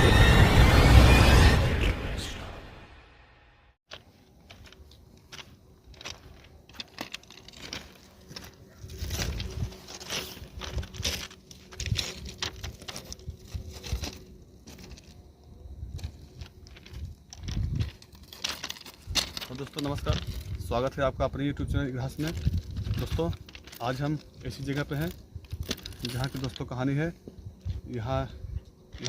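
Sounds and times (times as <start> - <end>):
small clicks and crackles: 3.9 - 15.2, 16.0 - 20.6, 22.1 - 26.7.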